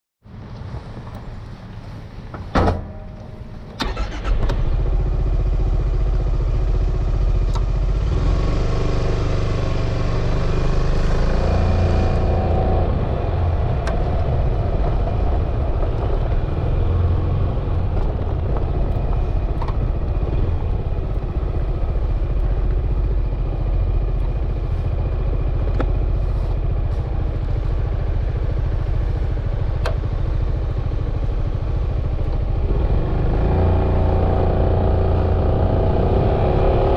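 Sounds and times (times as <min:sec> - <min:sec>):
wind and road noise: 0:00.2 - 0:36.9
scooter engine pulling away: 0:03.8 - 0:12.9.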